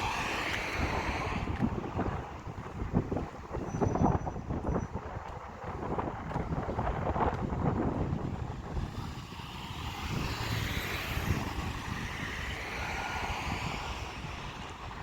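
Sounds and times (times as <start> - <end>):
wind rumble on microphone: 0.0 - 15.0
vehicle passing by: 8.7 - 14.9.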